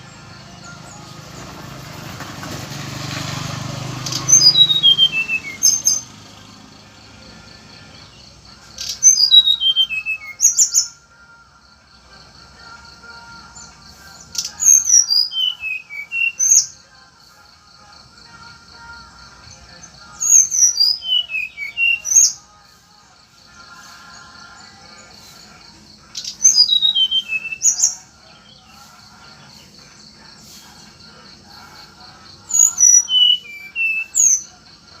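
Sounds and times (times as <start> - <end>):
songbird whistling: 4.0 - 6.2, 8.8 - 11.1, 13.5 - 16.8, 19.8 - 22.5, 26.1 - 28.9, 32.5 - 34.6.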